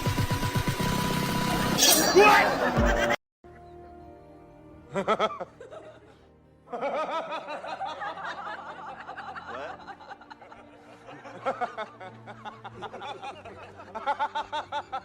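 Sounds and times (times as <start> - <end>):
background music: 0.0 - 15.0
people laughing: 2.1 - 3.2, 4.9 - 15.0.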